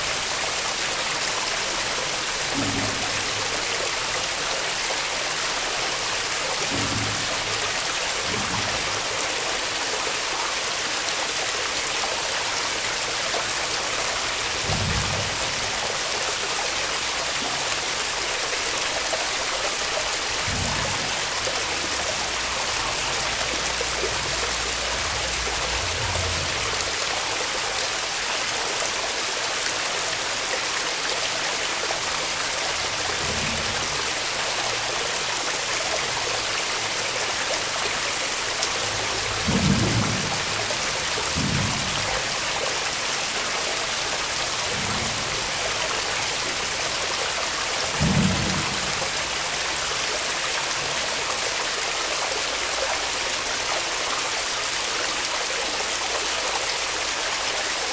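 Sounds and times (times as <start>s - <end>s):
waterfall rushing: 0.0s - 57.9s
low bumps: 20.3s - 27.6s.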